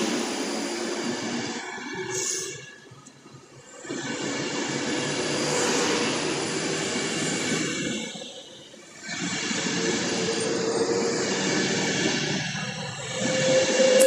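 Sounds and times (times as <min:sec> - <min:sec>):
train rushing past: 0:10.2 - 0:14.0.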